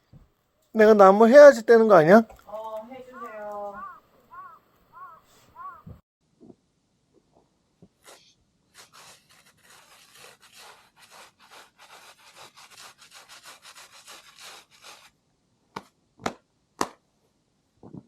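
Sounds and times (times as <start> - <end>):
hand saw cutting wood: 8.0 - 15.1.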